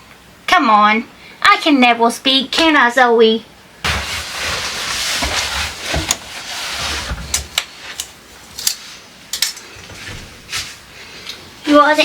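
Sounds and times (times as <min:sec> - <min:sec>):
rustling rushing noise: 0:03.8 - 0:07.9.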